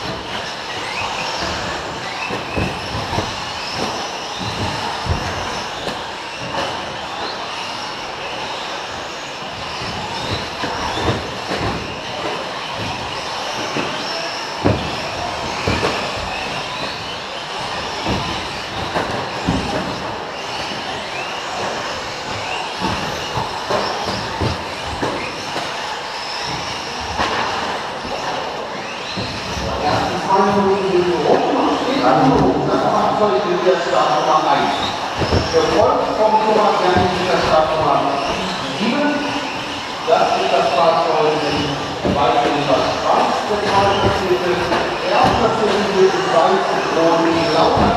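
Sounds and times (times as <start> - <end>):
sharp knocks: 0.0 - 7.0, 9.5 - 14.0, 14.6 - 21.0, 34.4 - 38.9, 41.4 - 45.8, 47.3 - 47.9
rc truck motors whining: 0.0 - 47.9.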